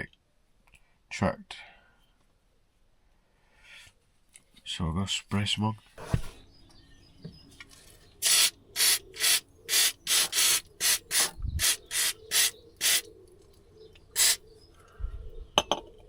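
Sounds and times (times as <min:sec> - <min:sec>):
aerosol spray squirts: 0:08.2 - 0:13.1, 0:14.2 - 0:14.4.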